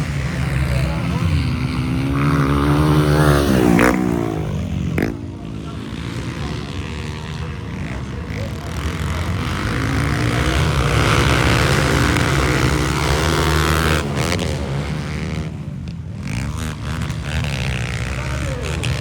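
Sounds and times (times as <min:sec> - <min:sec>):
motorcycle engines revving high: 0:00.0 - 0:19.0.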